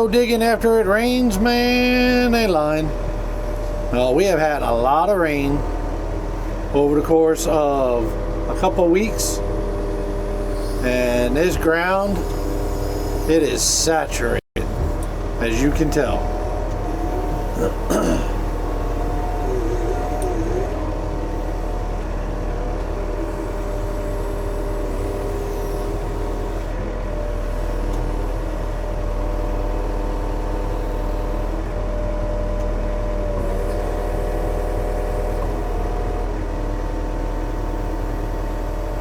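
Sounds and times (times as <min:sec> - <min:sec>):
diesel engine droning: 0:00.0 - 0:39.0
whining tones: 0:14.6 - 0:26.7.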